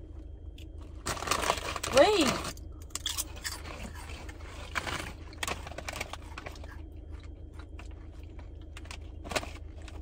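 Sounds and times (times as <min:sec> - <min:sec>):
steady low hum: 0:00.0 - 0:10.0
crunching and chewing corn puffs: 0:00.2 - 0:10.0.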